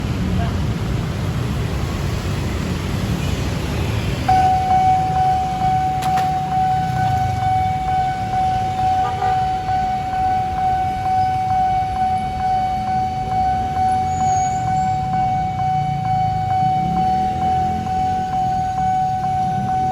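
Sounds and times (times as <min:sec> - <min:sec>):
vehicle traffic rumble: 0:00.0 - 0:19.9
level crossing alarm tone: 0:04.3 - 0:19.9.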